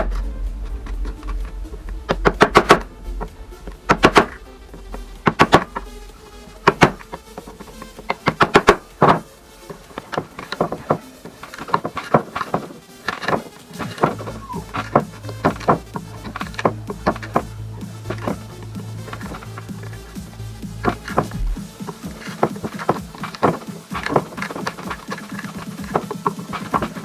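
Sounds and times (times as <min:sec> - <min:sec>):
background music: 0:00.0 - 0:27.0
hammering on wood: 0:06.6 - 0:07.1, 0:08.0 - 0:09.2, 0:10.0 - 0:17.5, 0:20.8 - 0:27.0.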